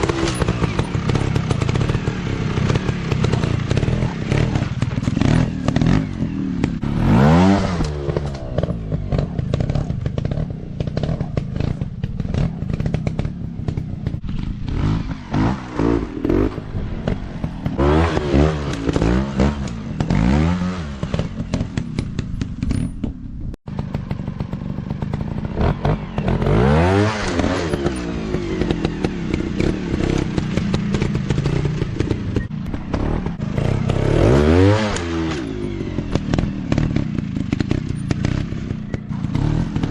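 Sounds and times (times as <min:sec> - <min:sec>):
dirt bike engines revving: 0:00.0 - 0:23.0, 0:23.7 - 0:39.9
clattering and thuds: 0:20.9 - 0:26.0.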